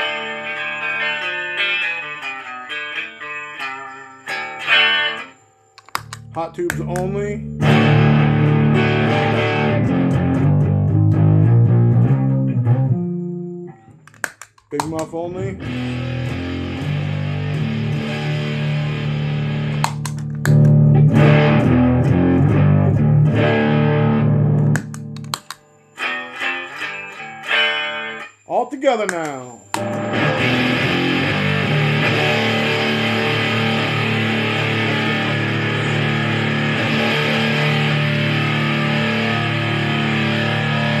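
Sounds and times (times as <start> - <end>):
fuzzed electric guitar chords: 0.0 - 41.0
sharp clicks: 5.8 - 7.2, 14.0 - 15.4, 19.7 - 20.8, 24.6 - 25.7, 29.0 - 30.1.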